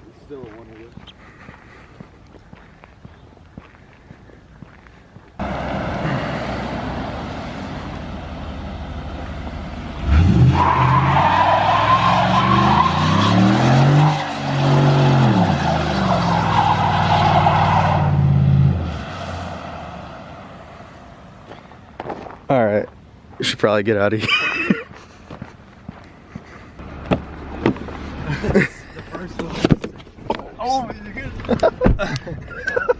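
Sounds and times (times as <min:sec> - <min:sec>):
pickup truck engine revving: 0:05.4 - 0:20.6
loud tire squeal: 0:10.0 - 0:20.3.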